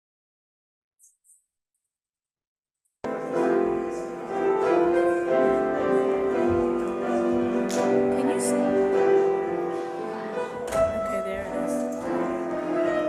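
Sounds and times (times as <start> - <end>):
slow piano music: 3.0 - 13.0.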